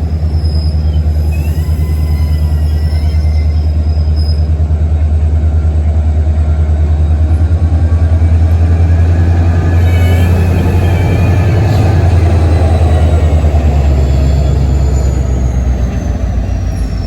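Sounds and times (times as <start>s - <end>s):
train rumbling along track: 0.0s - 17.0s
faint high squeal: 0.2s - 4.6s, 8.2s - 13.0s, 13.6s - 17.0s.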